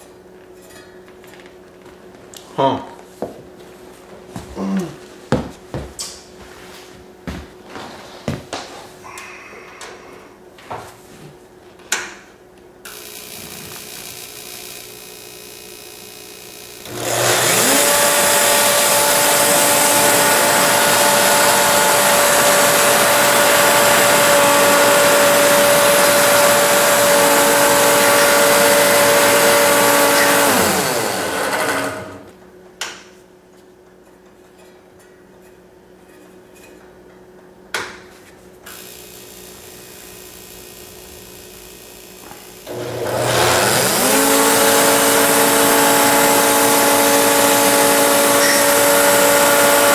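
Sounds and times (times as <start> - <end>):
electric motor whining: 12.9 - 32.3, 38.7 - 49.9.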